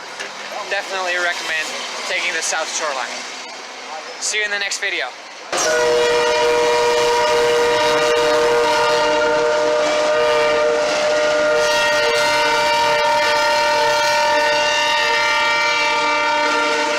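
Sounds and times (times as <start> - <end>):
train air horn chord: 5.5 - 16.9.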